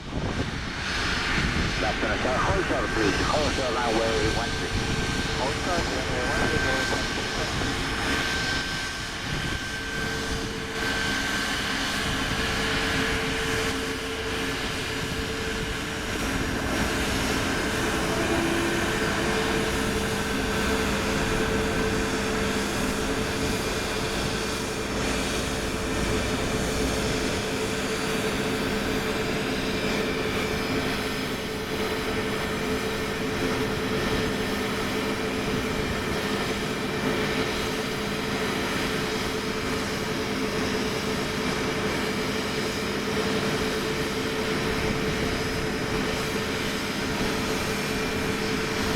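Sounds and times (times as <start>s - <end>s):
jet engines running: 0.0s - 48.9s.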